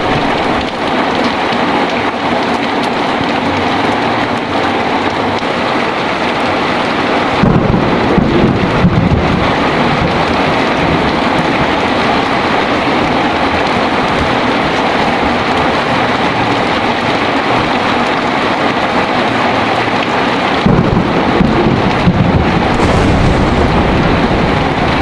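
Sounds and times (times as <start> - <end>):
heavy rain pouring: 0.0 - 25.0
thunder rumble: 20.7 - 25.0.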